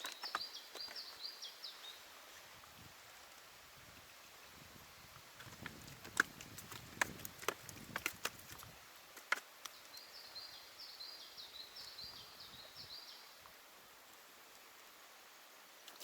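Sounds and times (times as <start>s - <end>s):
songbird chirping: 0.0s - 2.5s, 5.7s - 13.6s.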